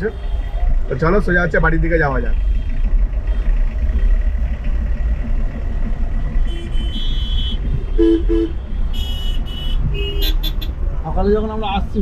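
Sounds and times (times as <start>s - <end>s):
car engine and road rumble: 0.0s - 12.0s
car horn toots: 6.5s - 10.7s.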